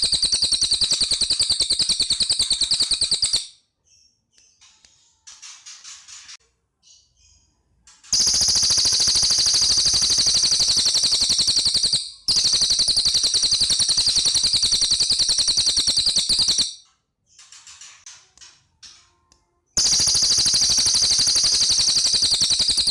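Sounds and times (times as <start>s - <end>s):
rapid rattling bird trills: 0.0s - 3.5s, 8.1s - 16.8s, 19.8s - 22.9s
faint bird chirps: 0.0s - 22.9s.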